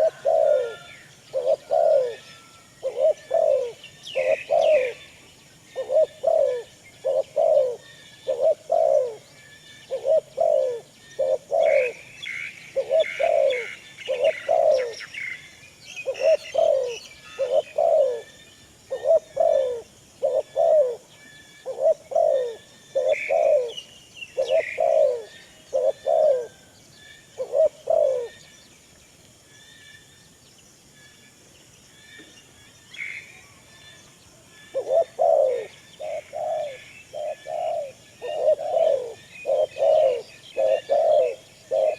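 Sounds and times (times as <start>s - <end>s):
bird repeating short low calls: 34.8s - 41.9s.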